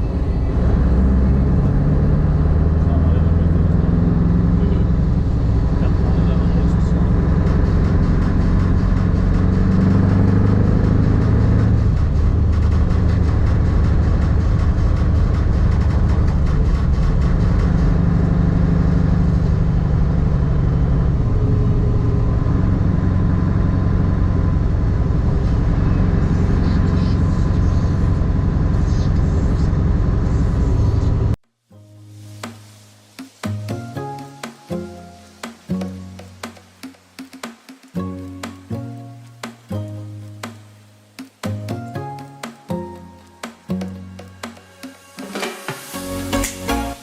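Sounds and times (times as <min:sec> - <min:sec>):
road noise: 0:00.0 - 0:31.4
truck engine: 0:00.0 - 0:31.4.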